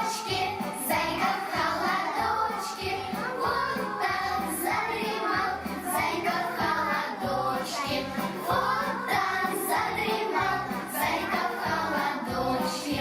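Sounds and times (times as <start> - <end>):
children singing: 0.0 - 13.0
music backing track: 0.0 - 13.0.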